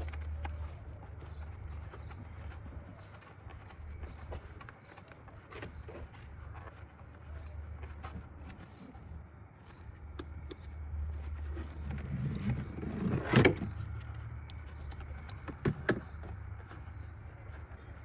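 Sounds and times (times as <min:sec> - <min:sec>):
metal scraping: 0:11.5 - 0:14.2.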